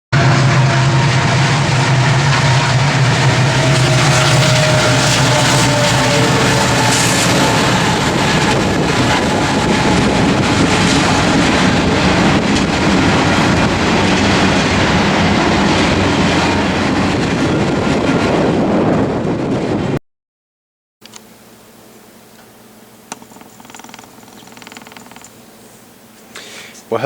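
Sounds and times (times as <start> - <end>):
engine hum: 0.2 - 18.6, 21.1 - 26.8
train rumble and rattle: 0.2 - 20.0.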